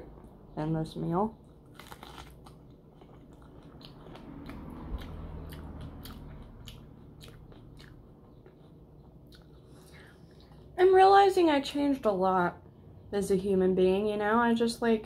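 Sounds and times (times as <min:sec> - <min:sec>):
chewing corn on the cob: 0:01.4 - 0:10.7.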